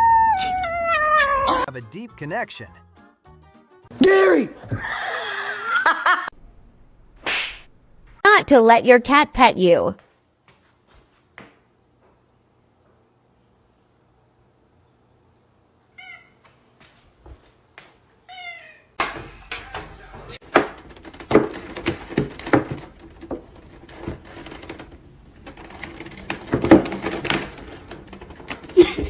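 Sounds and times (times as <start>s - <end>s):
cat meowing: 0.0s - 1.7s, 16.0s - 16.4s, 18.3s - 19.0s
clatter of knocks and thumps: 19.0s - 29.0s.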